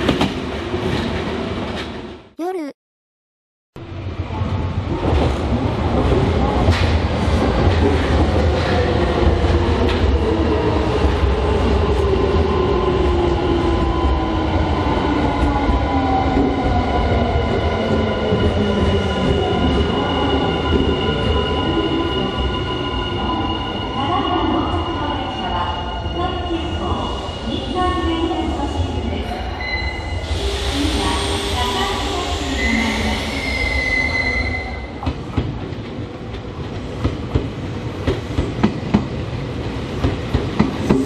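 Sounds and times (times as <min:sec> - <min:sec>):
electric train braking: 0:29.6 - 0:34.8.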